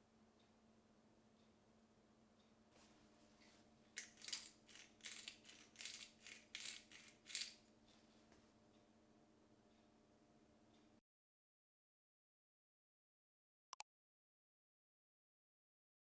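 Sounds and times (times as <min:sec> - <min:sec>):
short dry rattles: 0:04.0 - 0:07.6.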